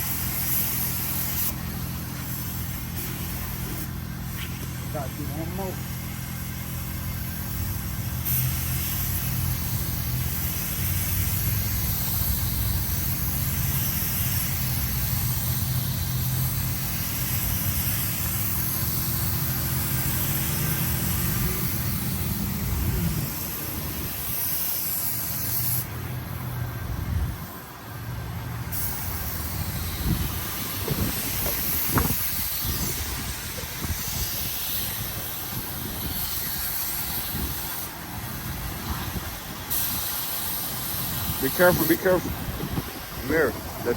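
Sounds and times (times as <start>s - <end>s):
paint spray gun hissing: 0.0s - 26.5s, 28.7s - 43.9s.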